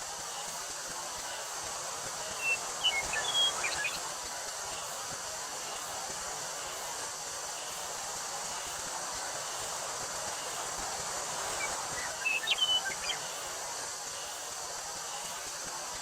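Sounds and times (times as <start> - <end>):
cicada drone: 0.0 - 16.0
bird chirping: 2.3 - 4.0, 11.5 - 13.3.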